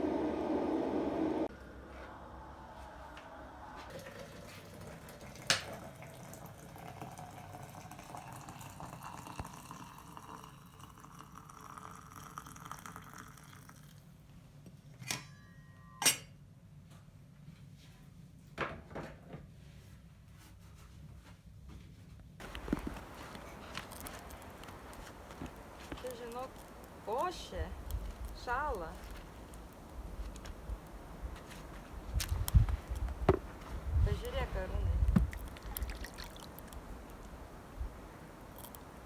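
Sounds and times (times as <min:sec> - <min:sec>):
water filling a vessel: 0:03.9 - 0:14.0, 0:22.4 - 0:39.0.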